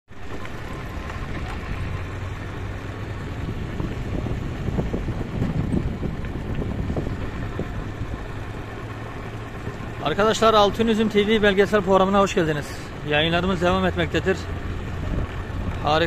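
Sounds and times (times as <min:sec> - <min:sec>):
vehicle engine hum: 0:00.0 - 0:16.0
wind buffeting microphone: 0:00.1 - 0:10.0, 0:14.6 - 0:16.0.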